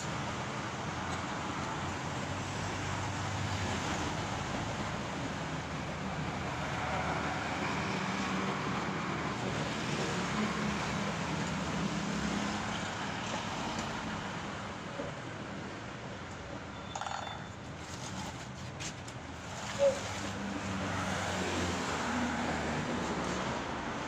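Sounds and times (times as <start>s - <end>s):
road traffic hiss: 17.6s - 24.0s.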